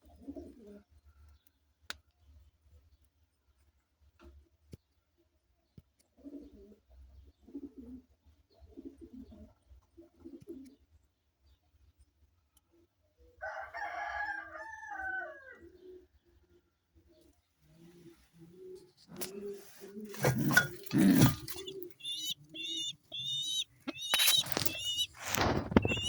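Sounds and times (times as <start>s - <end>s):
pigeons cooing: 17.8s - 26.0s
higher falling pigeon call: 19.2s - 26.0s.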